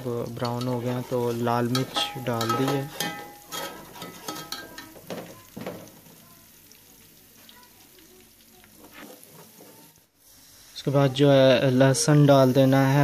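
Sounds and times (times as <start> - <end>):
onions sizzling in oil: 0.0 - 13.0
metal spoon scraping pot: 0.2 - 4.9.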